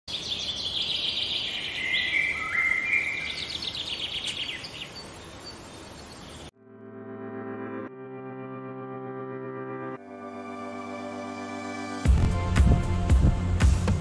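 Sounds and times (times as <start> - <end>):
birds chirping: 0.1 - 6.5.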